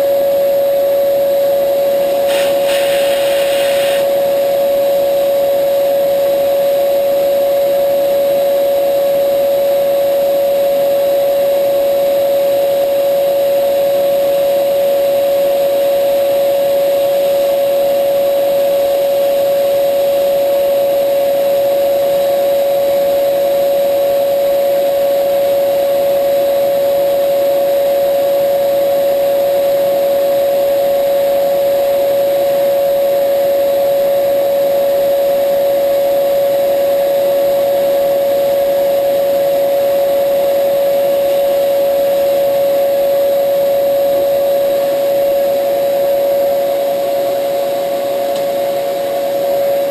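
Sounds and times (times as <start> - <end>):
milling machine whining: 1.8 - 4.7.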